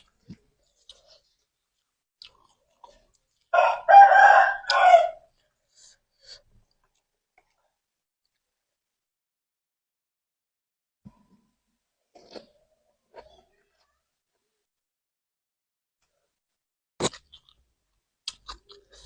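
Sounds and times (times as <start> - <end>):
faint chewing clicks: 0.0 - 3.5, 18.2 - 19.0
rooster crowing: 3.6 - 5.3.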